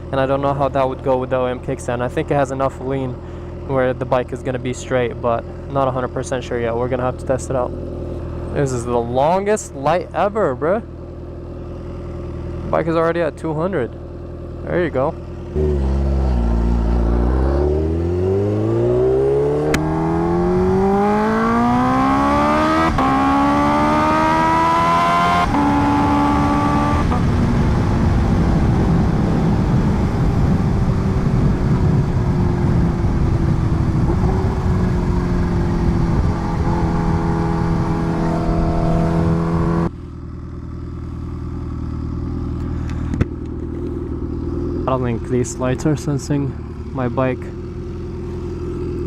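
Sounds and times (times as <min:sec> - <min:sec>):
motorcycle engine revving: 0:14.1 - 0:49.0.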